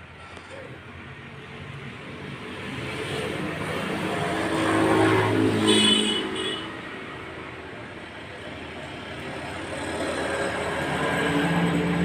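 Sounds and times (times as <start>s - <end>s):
vehicle engine passing by: 2.2s - 6.4s, 9.2s - 12.0s.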